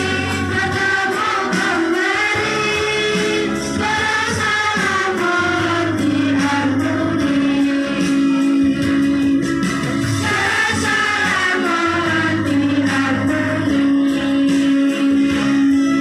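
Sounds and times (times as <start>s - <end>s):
children's choir singing: 0.0s - 9.4s, 10.2s - 16.0s.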